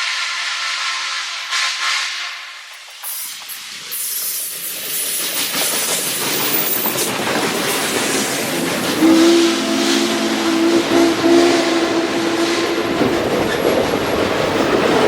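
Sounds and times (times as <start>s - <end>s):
steam locomotive passing: 0.0s - 15.0s
steam whistle chord: 9.0s - 13.8s.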